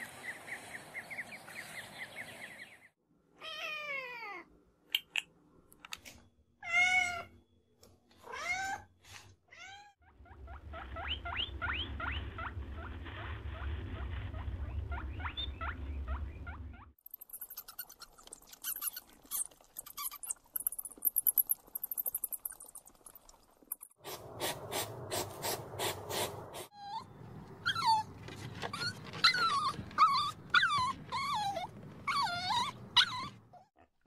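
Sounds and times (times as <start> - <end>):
low steady rumble: 10.2 - 17.0
rat chewing seeds: 17.0 - 24.0.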